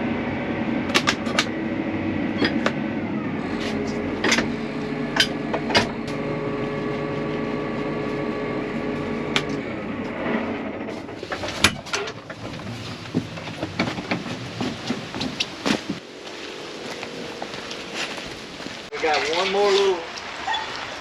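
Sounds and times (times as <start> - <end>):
mechanical hum: 0.0 - 11.7.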